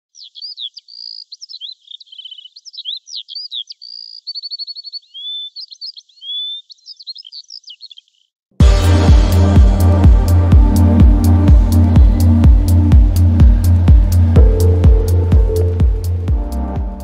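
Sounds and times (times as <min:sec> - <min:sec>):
songbird singing: 0:00.0 - 0:08.4, 0:11.7 - 0:17.0
electronic music with heavy bass: 0:08.6 - 0:17.0.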